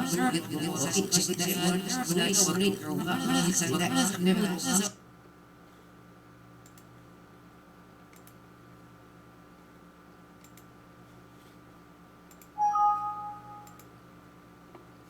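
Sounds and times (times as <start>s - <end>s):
faint electrical hum: 0.0s - 15.0s
faint mouse clicks: 6.6s - 6.9s, 8.1s - 8.4s, 10.4s - 10.7s, 12.3s - 12.6s
two-note computer chime: 12.6s - 13.8s.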